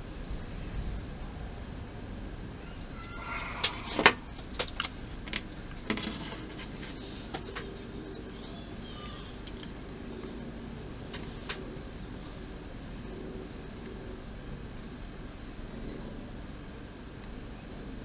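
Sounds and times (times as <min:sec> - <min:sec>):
faint high chirping: 0:02.6 - 0:11.0
plastic parts clicking: 0:03.4 - 0:07.0.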